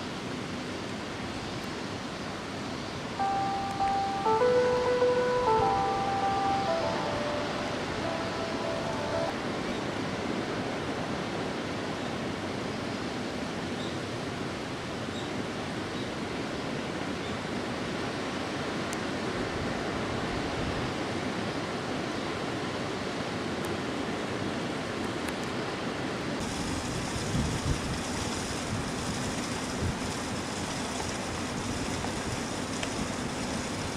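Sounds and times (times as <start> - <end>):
rushing outdoor noise: 0.0 - 33.9
faint high ringing tones: 3.2 - 9.9.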